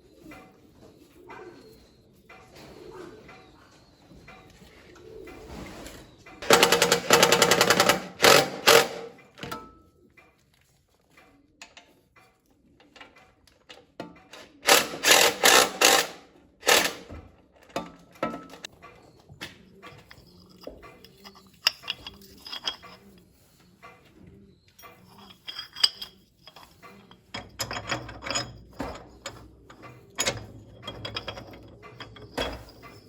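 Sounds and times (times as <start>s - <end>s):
power tool rattling: 6.4s - 9.6s, 14.3s - 18.7s.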